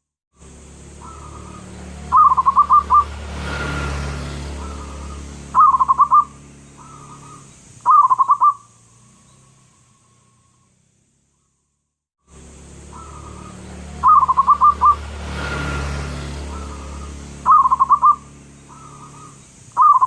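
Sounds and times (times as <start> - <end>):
steady low hum: 0.4 - 19.8
dove cooing: 4.6 - 8.6, 12.9 - 15.0, 16.4 - 20.0.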